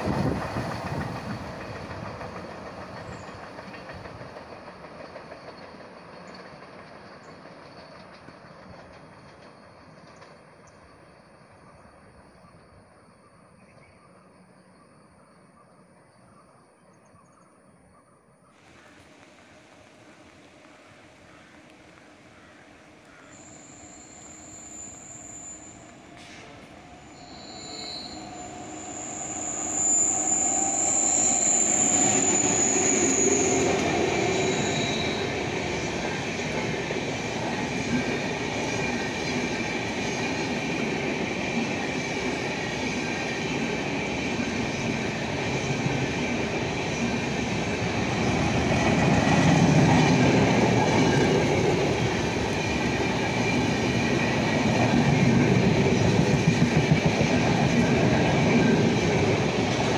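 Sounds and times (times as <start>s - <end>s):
train wheels rumbling on rails: 0.0s - 14.6s, 18.6s - 59.9s
high squeal: 23.2s - 35.9s.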